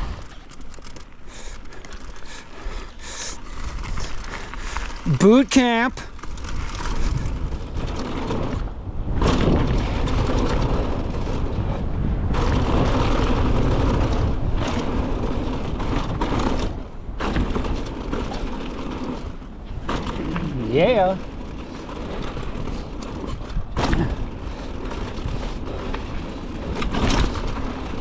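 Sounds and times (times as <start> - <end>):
bike tyre noise: 0.0 - 28.0
wind rushing over microphone: 1.3 - 28.0
bike knocks: 12.3 - 28.0.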